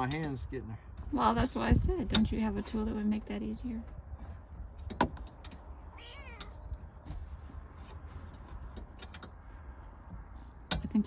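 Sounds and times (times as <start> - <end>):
cat meowing: 5.9 - 6.7.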